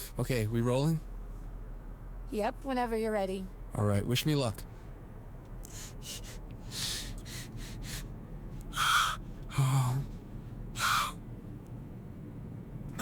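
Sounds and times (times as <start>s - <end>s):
harsh crow-like caws: 8.7s - 10.0s, 10.8s - 11.2s.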